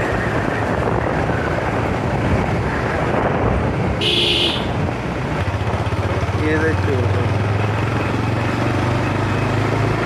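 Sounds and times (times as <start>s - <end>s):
wind buffeting microphone: 0.0s - 6.6s
motorcycle running: 0.0s - 10.0s.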